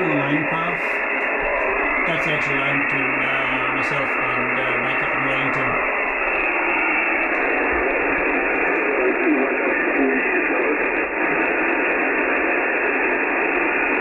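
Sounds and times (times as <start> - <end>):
faint wavering radio signal: 0.0 - 14.0
radio receiver hiss: 0.0 - 14.0.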